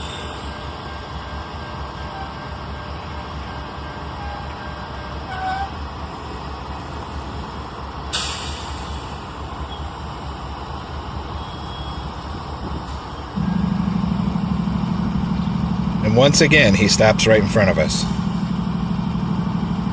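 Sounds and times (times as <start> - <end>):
air brake hiss: 0.0 - 0.6, 8.1 - 9.3
diesel locomotives rumbling: 0.0 - 19.9.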